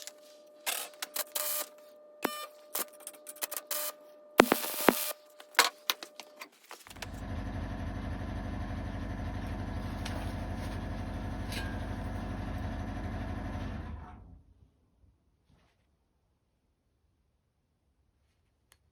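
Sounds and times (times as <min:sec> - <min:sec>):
motor running with rapid pulsing: 0:00.0 - 0:05.2, 0:06.9 - 0:14.0.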